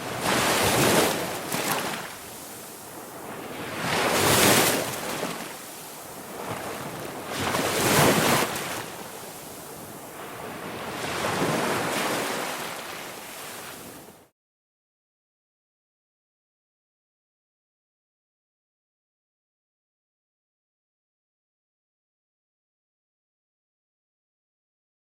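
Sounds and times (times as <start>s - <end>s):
ocean waves: 0.0s - 14.3s.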